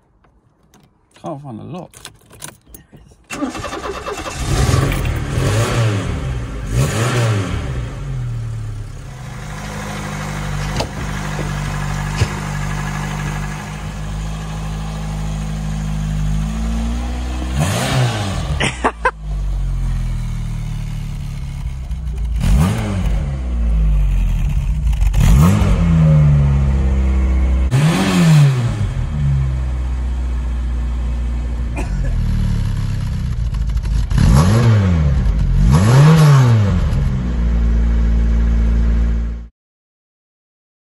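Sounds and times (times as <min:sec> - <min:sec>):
car engine idling: 0:07.8 - 0:17.6, 0:18.4 - 0:25.2, 0:28.8 - 0:34.1.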